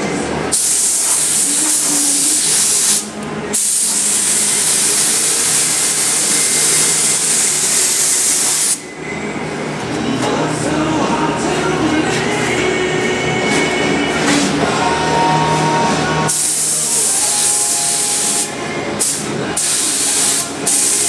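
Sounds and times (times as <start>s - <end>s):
spray gun hissing: 0.5s - 8.8s, 16.3s - 21.0s.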